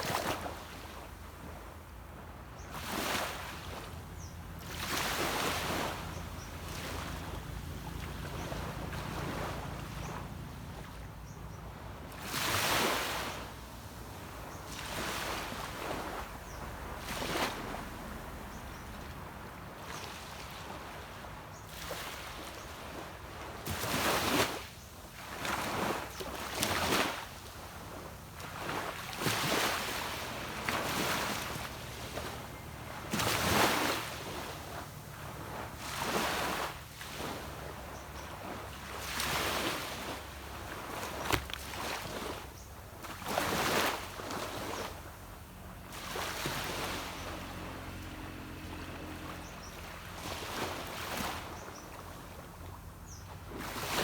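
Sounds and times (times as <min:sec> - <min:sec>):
small waves washing onto beach: 0:00.0 - 0:54.0
low steady rumble: 0:15.4 - 0:21.6.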